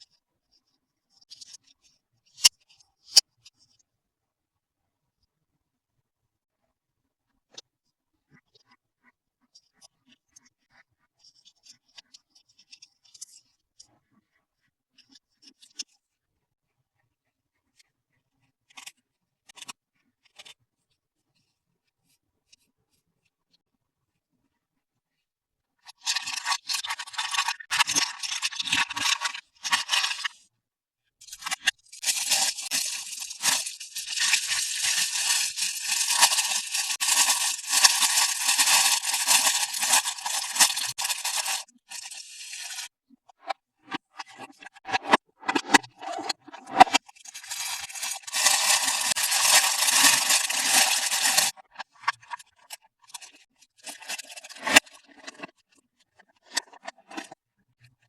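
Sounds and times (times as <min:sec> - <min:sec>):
packaging rustling and scraping: 0:26.1 - 0:30.4, 0:31.3 - 0:42.9, 0:46.8 - 0:51.5, 0:53.8 - 0:54.9.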